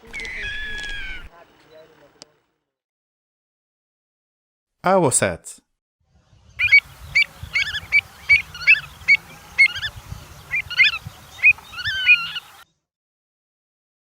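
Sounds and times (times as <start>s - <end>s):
bird calling sharply: 0.0s - 1.3s, 6.6s - 12.6s.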